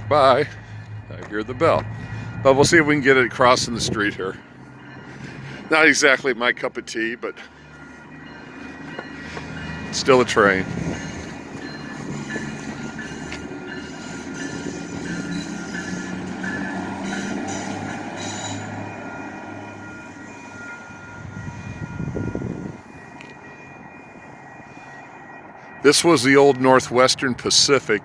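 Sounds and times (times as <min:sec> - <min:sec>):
train engine rumbling: 0:00.0 - 0:28.0
high wheel squeal: 0:07.5 - 0:26.8.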